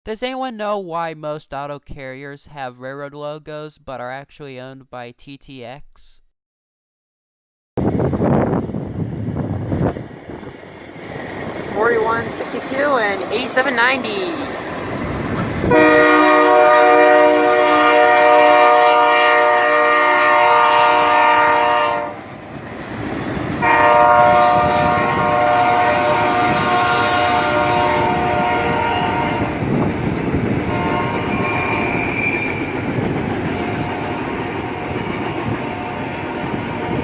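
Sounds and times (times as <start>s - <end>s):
passing train rumble: 7.8s - 37.0s
locomotive air horn blasts: 15.6s - 22.4s, 23.6s - 29.6s, 30.7s - 32.5s, 33.8s - 36.9s.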